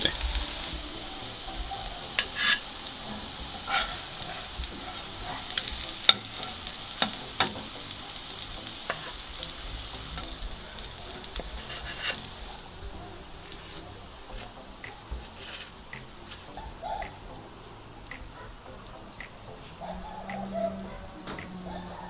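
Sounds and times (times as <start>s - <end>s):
fish patties sizzling in oil: 0.0s - 14.4s
metal spatula scraping and tapping: 2.2s - 2.9s, 8.8s - 9.3s, 11.3s - 12.5s.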